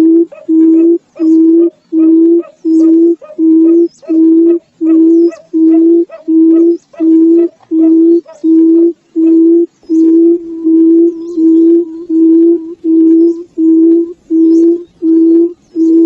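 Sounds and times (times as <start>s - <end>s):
bird hollow booming hoots: 0.0s - 16.0s.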